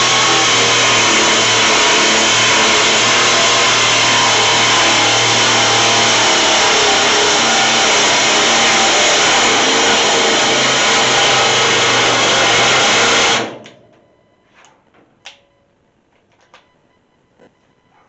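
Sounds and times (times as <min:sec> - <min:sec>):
motor running loudly: 0:00.0 - 0:13.7.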